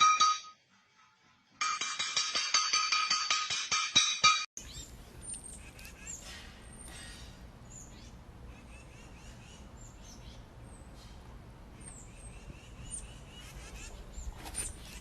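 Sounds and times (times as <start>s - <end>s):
birds chirping and whistling: 4.6s - 11.1s, 11.8s - 15.0s.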